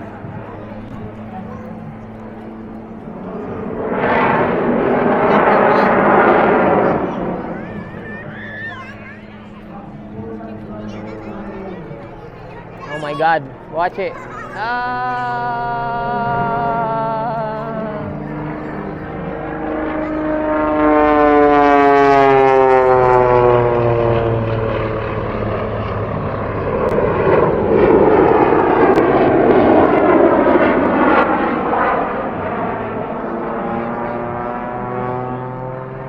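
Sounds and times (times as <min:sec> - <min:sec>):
rough engine noise: 0:00.0 - 0:29.4, 0:30.1 - 0:36.0
propeller airplane flying past: 0:00.0 - 0:36.0.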